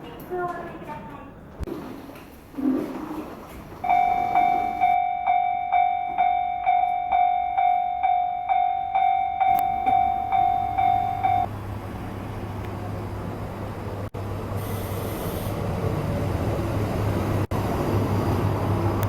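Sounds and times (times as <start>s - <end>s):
train rumbling: 0.0s - 19.0s
level-crossing warning bell: 3.8s - 11.5s.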